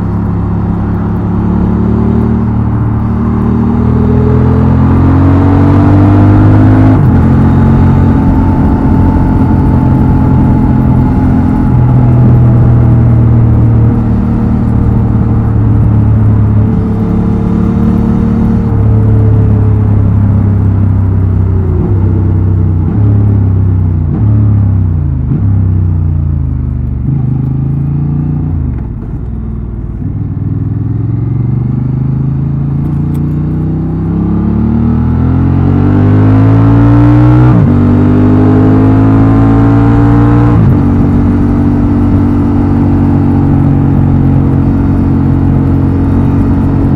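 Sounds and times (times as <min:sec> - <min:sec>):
motorcycle engine through exhaust: 0:00.0 - 0:46.9.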